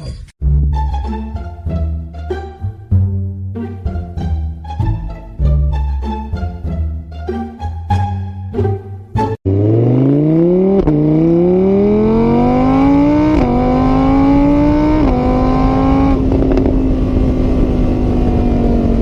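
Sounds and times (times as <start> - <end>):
engine accelerating through gears: 9.4 - 19.0.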